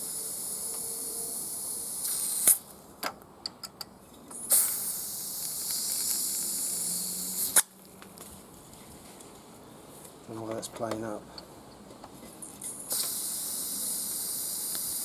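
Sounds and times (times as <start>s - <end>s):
gas hissing from canister: 0.0s - 2.6s, 4.3s - 7.7s, 12.6s - 15.0s.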